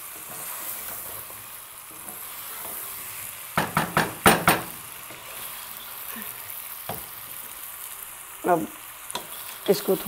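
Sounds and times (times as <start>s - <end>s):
food sizzling in a pot: 0.0s - 10.0s
spatula knocking against pot: 3.6s - 4.7s.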